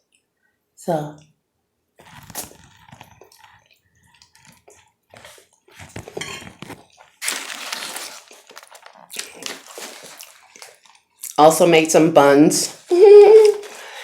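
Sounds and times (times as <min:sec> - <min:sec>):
noodles slurping: 0:02.0 - 0:06.0, 0:06.8 - 0:11.4
chewing: 0:02.0 - 0:07.4, 0:08.2 - 0:11.4.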